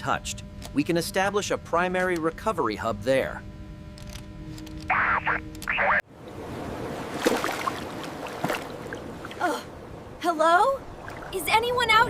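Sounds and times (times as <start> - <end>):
noisy ambience: 0.0 - 12.0.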